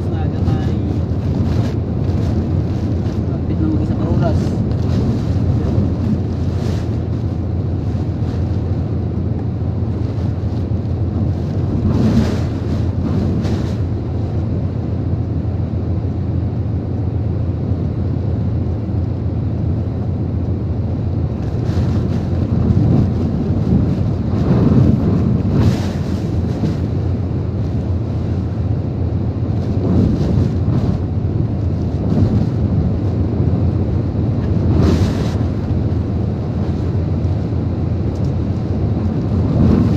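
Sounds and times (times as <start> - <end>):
strong wind and rain: 0.0 - 39.9
wind buffeting microphone: 0.0 - 39.9.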